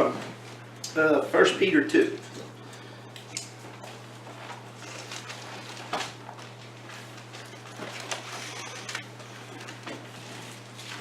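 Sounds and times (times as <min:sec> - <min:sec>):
low electrical hum: 0:00.0 - 0:11.0
pages turning and rustling: 0:04.2 - 0:11.0.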